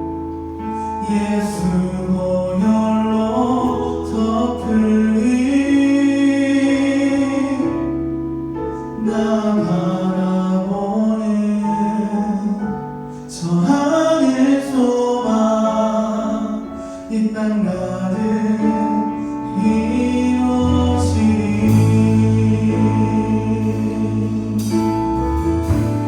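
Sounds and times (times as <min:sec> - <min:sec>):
deep bass: 0:00.0 - 0:14.0, 0:16.2 - 0:26.0
people singing: 0:13.4 - 0:26.0
praise band playing: 0:19.0 - 0:26.0.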